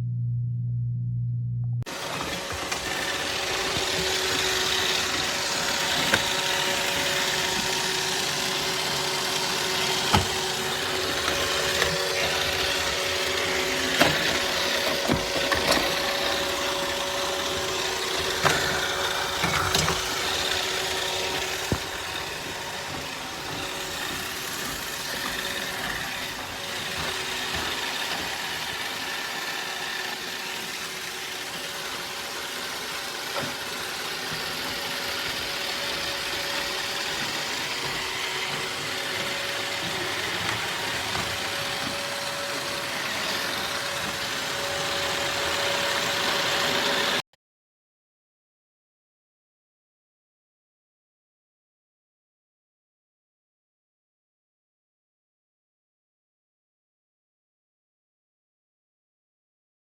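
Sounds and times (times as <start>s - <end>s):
robot vacuum motor and brush hum: 1.9s - 47.2s.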